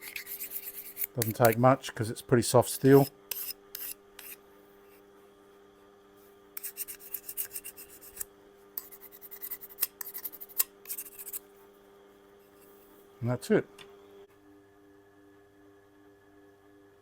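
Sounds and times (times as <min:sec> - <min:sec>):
file rasping on steel blade: 0:00.0 - 0:01.6, 0:02.7 - 0:05.0, 0:06.6 - 0:11.5.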